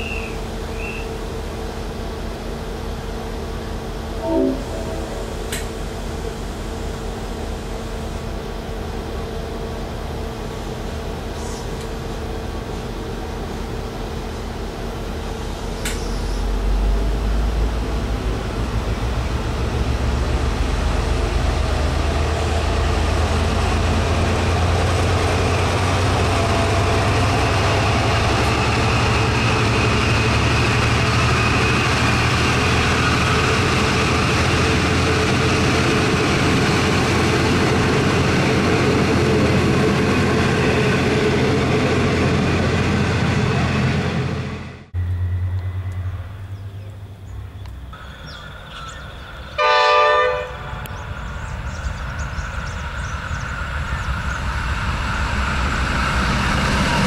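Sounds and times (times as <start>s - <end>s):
diesel train passing: 0.0s - 57.0s
steady hum: 3.2s - 8.6s.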